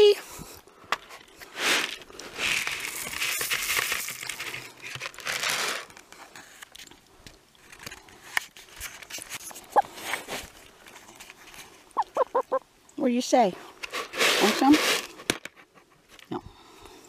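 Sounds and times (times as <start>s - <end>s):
crunching crinkling noise: 0.2s - 12.9s
chicken call: 12.0s - 12.6s.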